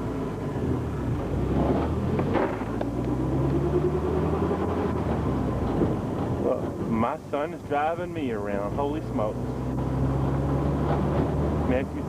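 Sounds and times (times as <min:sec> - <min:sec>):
motorcycle engine revving: 0:00.4 - 0:05.9, 0:08.8 - 0:12.0.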